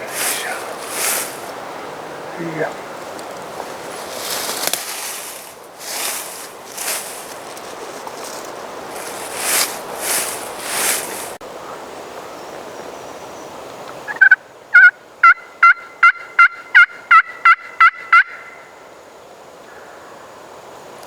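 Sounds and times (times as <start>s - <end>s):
rustle: 0.0s - 15.2s
turkey yelps: 14.1s - 18.7s.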